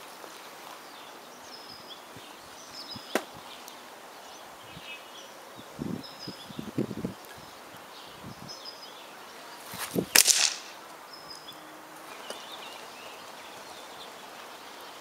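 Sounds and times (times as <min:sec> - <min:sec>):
small birds chirping: 0:00.0 - 0:15.0
air rifle shot: 0:10.1 - 0:10.8.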